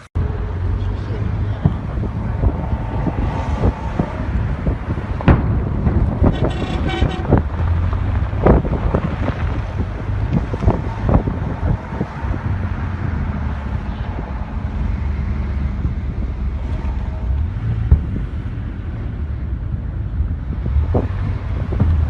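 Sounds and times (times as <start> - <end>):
steady low rumble: 0.2 - 22.0
wind buffeting microphone: 0.2 - 22.0
sharp thumps: 1.6 - 11.3.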